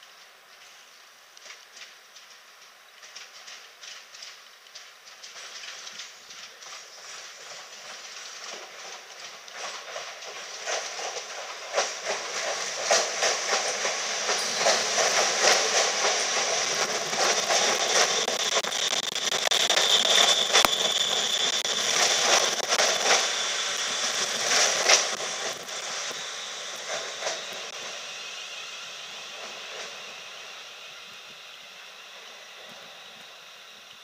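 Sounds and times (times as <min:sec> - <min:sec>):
train wheels clattering: 0:01.5 - 0:31.4
high squeal: 0:14.0 - 0:33.9.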